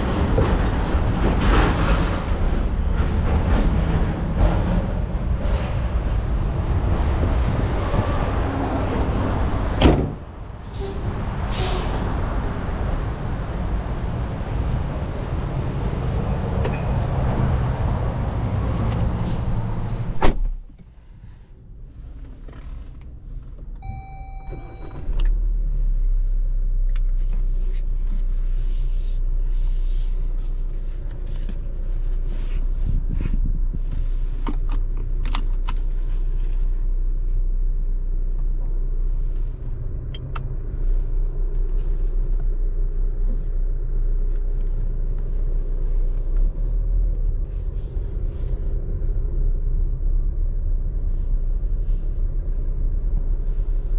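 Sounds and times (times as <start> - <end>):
diesel engine rumbling: 0.0 - 53.9
short electronic chime: 23.8 - 25.0.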